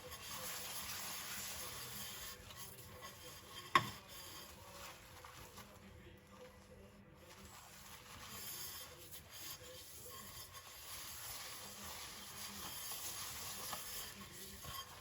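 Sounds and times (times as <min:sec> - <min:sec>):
sponge scrubbing plates: 0:00.0 - 0:15.0.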